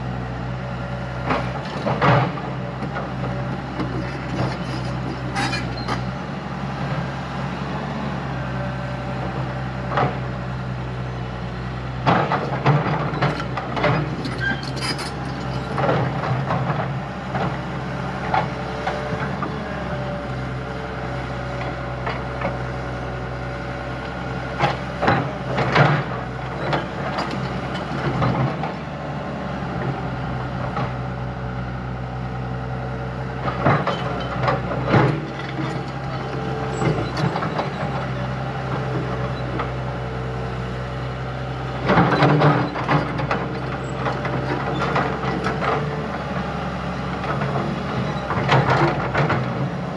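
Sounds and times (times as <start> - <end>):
diesel engine running: 0.0 - 49.9
machinery knocks and clanks: 1.2 - 6.1, 9.8 - 10.4, 12.0 - 20.4, 24.1 - 29.0, 33.4 - 39.8, 41.7 - 49.8.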